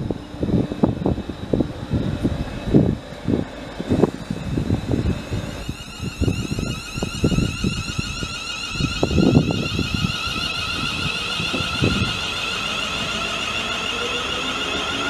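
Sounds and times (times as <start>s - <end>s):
warbling high-pitched rail whine: 0.0s - 15.0s
wind buffeting microphone: 0.0s - 15.0s.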